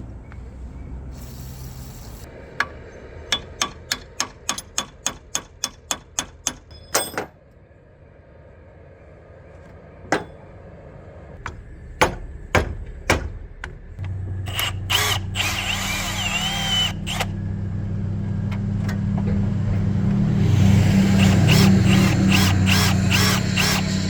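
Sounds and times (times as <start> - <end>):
hammer striking metal: 2.5 - 7.4, 10.1 - 10.5, 11.4 - 13.8
ringing metallic clang: 6.7 - 7.4.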